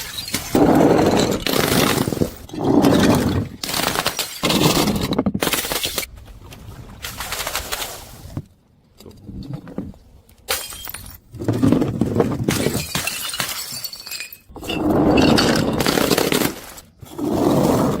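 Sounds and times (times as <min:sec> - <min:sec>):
glass bottles shattering: 0:00.0 - 0:06.0, 0:10.5 - 0:11.3, 0:12.5 - 0:16.6.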